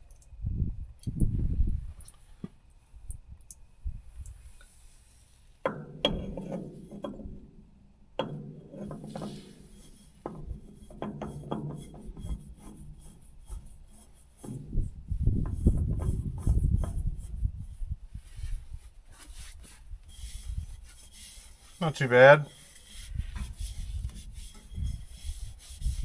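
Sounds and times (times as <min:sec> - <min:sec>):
rubbing and scraping on machinery: 0:04.7 - 0:07.5, 0:08.2 - 0:26.0.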